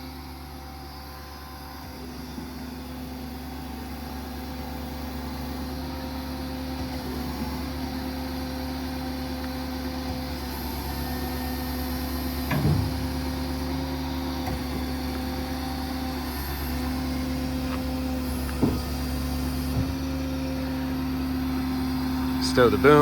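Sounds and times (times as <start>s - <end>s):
diesel engine running: 0.0s - 23.0s
short clunks: 12.2s - 20.4s.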